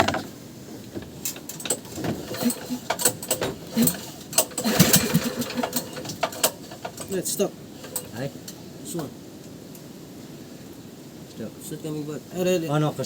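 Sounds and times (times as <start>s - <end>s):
metallic clicks and knocks of tools: 1.0s - 7.2s.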